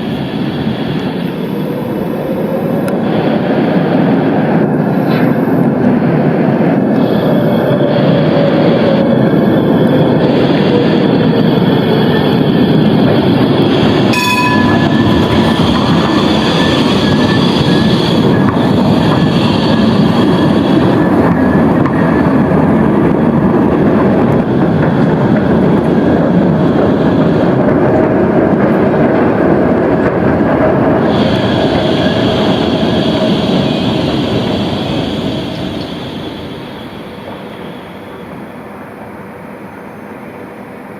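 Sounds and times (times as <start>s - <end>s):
tram wheels rumbling on rail: 0.0s - 40.9s
high wheel squeal: 6.9s - 22.4s, 30.9s - 38.4s
sharp clang: 14.1s - 15.0s.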